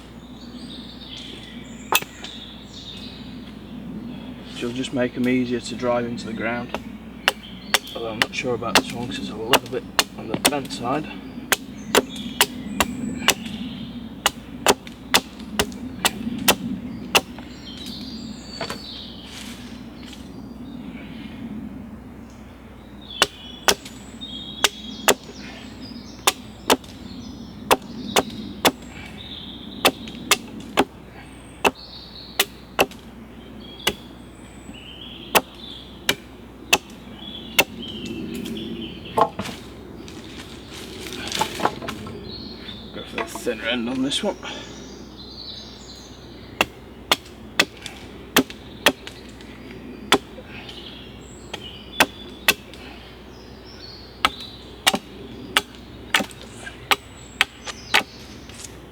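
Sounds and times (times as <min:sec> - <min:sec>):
blade chopping wood: 0:06.7 - 0:10.8, 0:11.5 - 0:13.5, 0:14.3 - 0:17.4, 0:26.2 - 0:27.0, 0:29.8 - 0:30.9, 0:32.4 - 0:33.0, 0:39.2 - 0:39.6, 0:46.6 - 0:49.2, 0:54.2 - 0:58.7.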